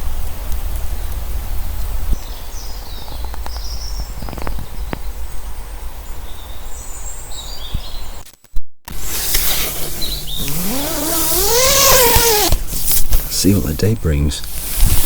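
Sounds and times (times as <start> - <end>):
birds chirping: 2.2 - 8.2, 9.3 - 12.5.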